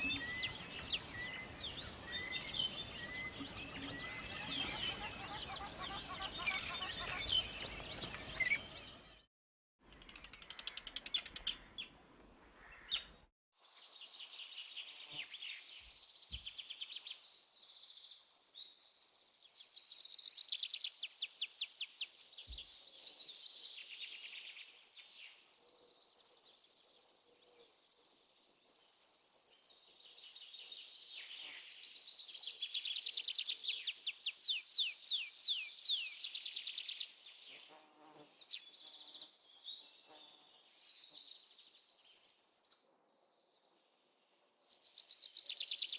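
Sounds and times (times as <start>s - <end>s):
songbirds chirping and singing: 0.0s - 9.2s, 31.4s - 37.2s.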